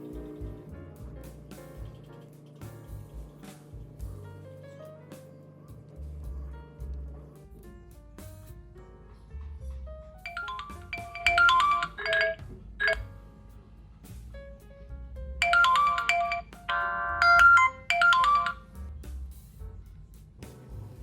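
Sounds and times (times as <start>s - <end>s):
smartphone ringtone melody: 10.3s - 13.0s, 15.4s - 18.6s.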